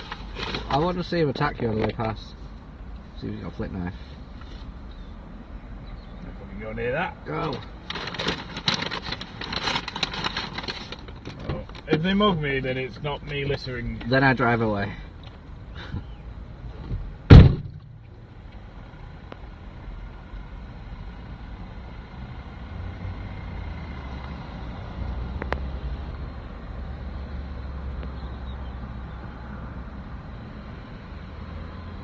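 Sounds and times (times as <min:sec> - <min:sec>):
car engine rumbling: 0:00.0 - 0:32.0
car door slamming: 0:16.9 - 0:18.0.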